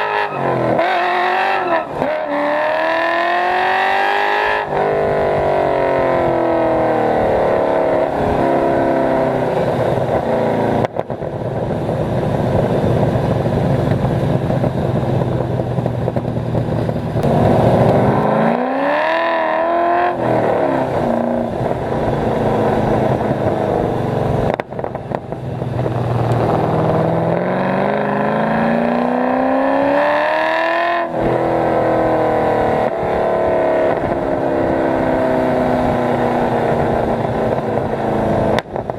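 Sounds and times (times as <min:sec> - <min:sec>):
car engine revving: 0:00.0 - 0:11.2, 0:12.0 - 0:38.9.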